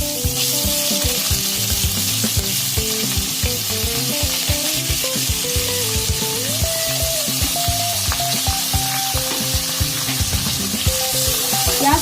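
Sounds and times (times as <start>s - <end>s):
background music with steady beat: 0.0s - 12.0s
onions sizzling in hot oil: 0.0s - 12.0s.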